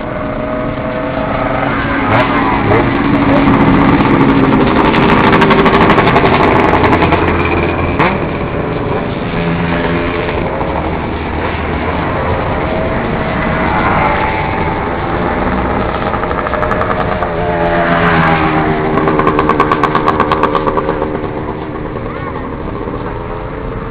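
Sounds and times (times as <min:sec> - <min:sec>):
motorcycles revving past: 0:00.0 - 0:23.9
sharp exhaust pops: 0:18.4 - 0:22.3.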